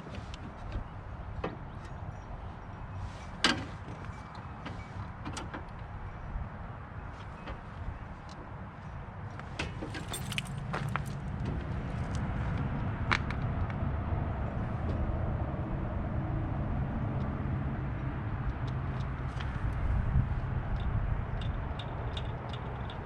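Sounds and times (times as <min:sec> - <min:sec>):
metallic clinks: 0:09.9 - 0:11.2.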